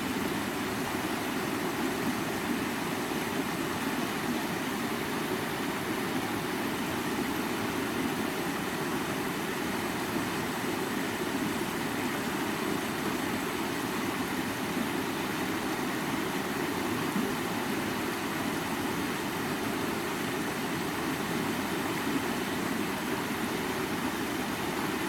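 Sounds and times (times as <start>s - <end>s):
creek water running: 0.0s - 25.0s.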